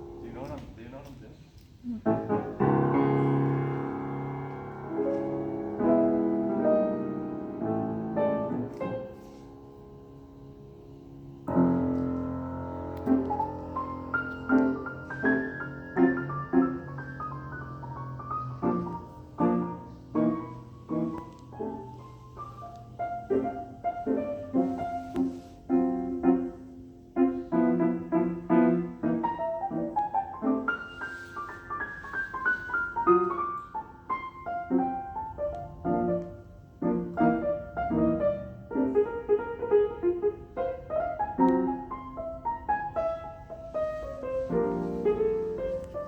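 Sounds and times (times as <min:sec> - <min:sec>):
grand piano playing: 0:00.0 - 0:01.2, 0:01.8 - 0:46.0.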